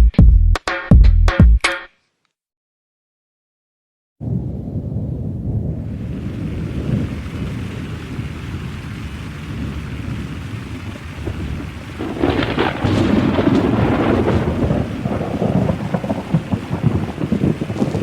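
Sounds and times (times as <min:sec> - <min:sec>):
rain: 0:04.2 - 0:18.0
thunder rumbling: 0:04.2 - 0:18.0.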